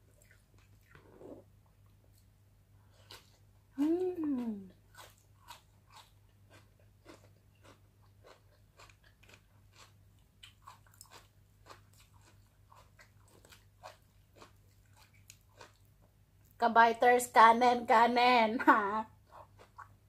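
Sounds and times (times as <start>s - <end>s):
soft chewing: 0.0s - 16.6s, 19.0s - 20.0s.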